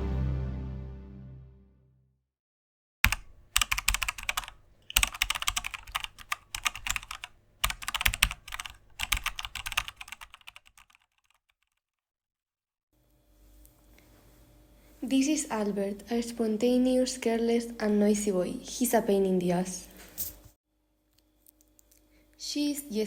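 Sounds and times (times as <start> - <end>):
music: 0.0 - 2.2
typing on computer keyboard: 3.0 - 11.4.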